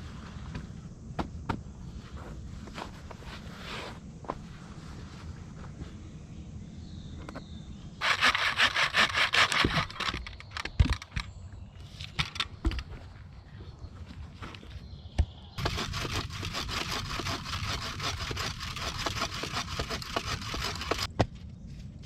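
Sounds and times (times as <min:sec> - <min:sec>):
knocks and thuds: 0:00.5 - 0:01.6
handsaw sawing wood: 0:08.0 - 0:10.0, 0:15.6 - 0:21.1.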